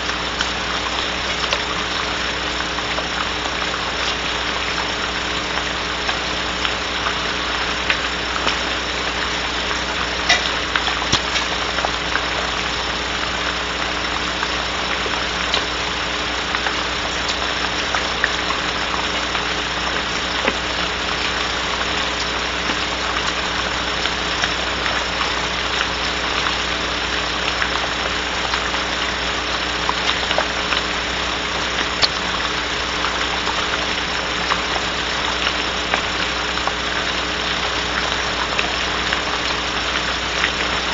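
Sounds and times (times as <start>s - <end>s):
constant low hum: 0.0s - 40.9s
rain hissing on wooden box: 0.0s - 40.9s.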